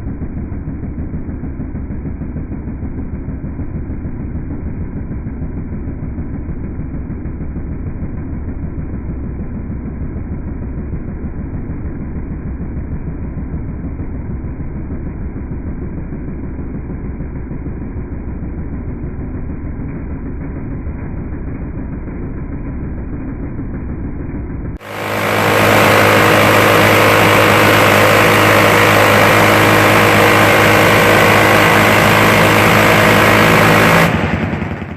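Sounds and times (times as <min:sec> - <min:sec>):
low engine rumble: 0:00.0 - 0:34.9
minigun firing: 0:24.8 - 0:34.9.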